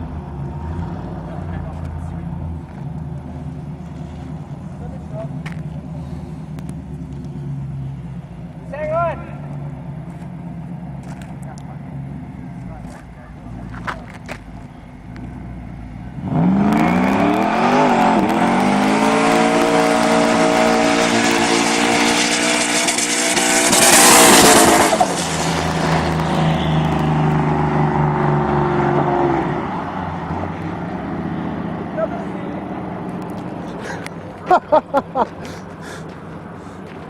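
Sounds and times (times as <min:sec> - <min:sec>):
pickup truck engine revving: 0:15.1 - 0:35.6.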